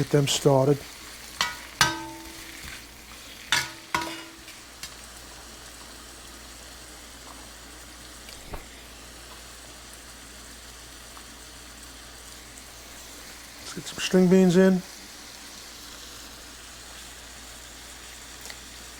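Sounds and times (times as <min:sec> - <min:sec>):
vegetables sizzling in oil: 0:00.0 - 0:18.9
utensil clanking against pan: 0:01.4 - 0:02.8, 0:03.5 - 0:04.9.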